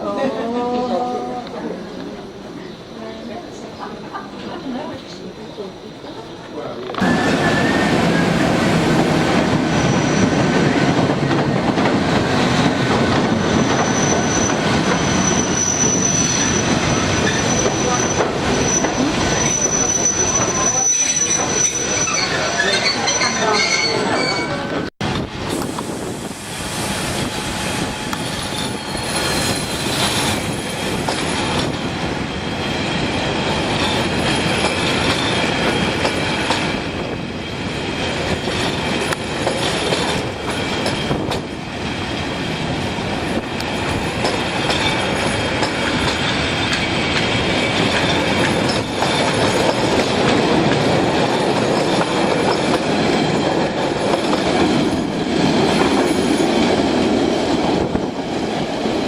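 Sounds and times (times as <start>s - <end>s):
train wheels clattering on rails: 6.9s - 22.8s, 26.9s - 59.0s
high wheel squeal: 7.0s - 8.5s, 9.7s - 10.5s, 13.4s - 24.8s.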